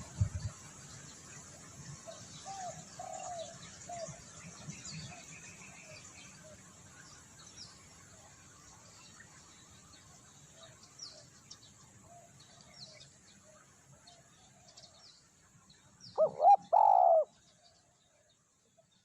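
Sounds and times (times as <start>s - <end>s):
dove cooing: 2.5s - 4.1s, 16.2s - 17.3s.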